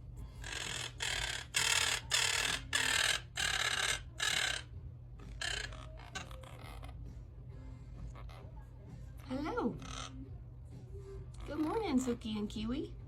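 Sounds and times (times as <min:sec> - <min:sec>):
pet birds calling harshly: 0:00.4 - 0:07.2, 0:07.9 - 0:10.3, 0:11.4 - 0:12.5.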